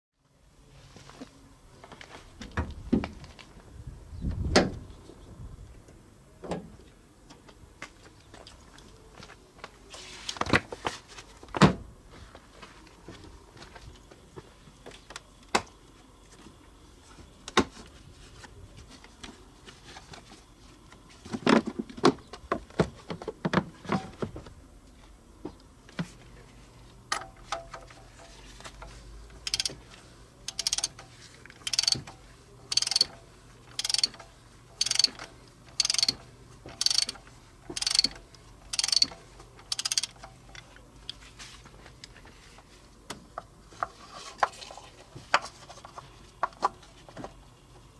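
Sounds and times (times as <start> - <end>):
socket ratchet rasping: 29.5 - 29.8, 30.5 - 31.0, 31.7 - 32.1, 32.7 - 33.1, 33.8 - 34.2, 34.8 - 35.2, 35.8 - 36.2, 36.8 - 38.1, 38.7 - 39.1, 39.7 - 40.2.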